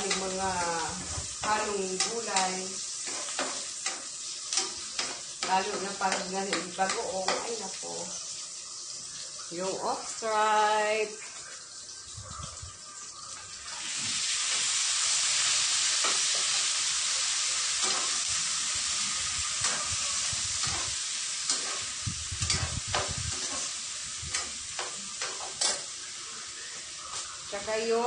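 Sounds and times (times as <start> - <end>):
food sizzling in a frying pan: 0.0 - 28.0.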